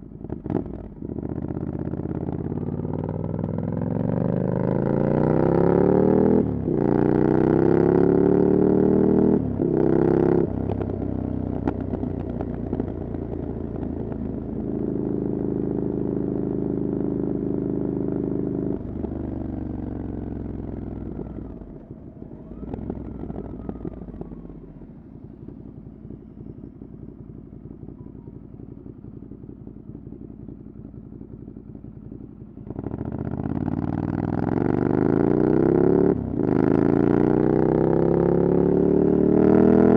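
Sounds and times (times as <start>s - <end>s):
motorcycle idling: 0.0s - 4.7s, 10.5s - 34.6s
motorcycle engine accelerating: 0.0s - 39.9s.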